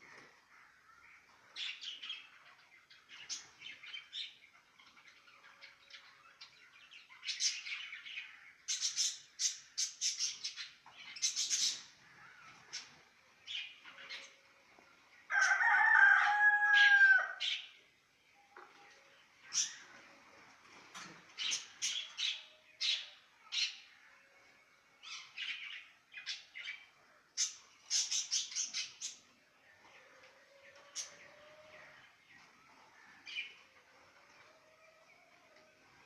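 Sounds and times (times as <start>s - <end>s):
parrots chirping and chattering: 8.7s - 13.0s, 27.4s - 29.3s.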